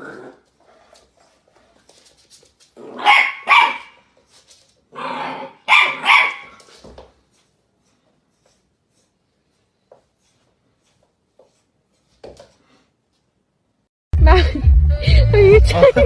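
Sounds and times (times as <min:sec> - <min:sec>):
dog growling: 0:00.0 - 0:00.9
dog barking: 0:03.0 - 0:04.0, 0:05.4 - 0:06.6.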